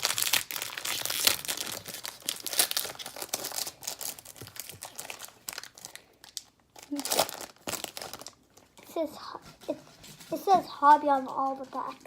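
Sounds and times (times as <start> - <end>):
foil pack tearing and crinkling: 0.0 - 8.5.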